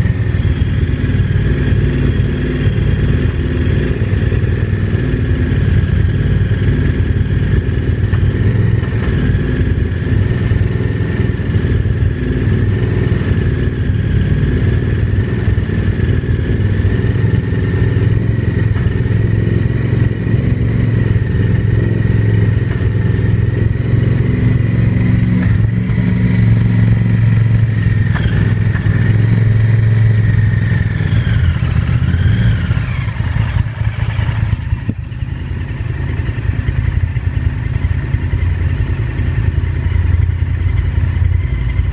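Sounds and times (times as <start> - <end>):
motorcycle engine running: 0.0 - 41.9
knocking clatter inside engine: 5.8 - 13.8, 17.0 - 19.3, 22.5 - 23.5, 25.3 - 41.9.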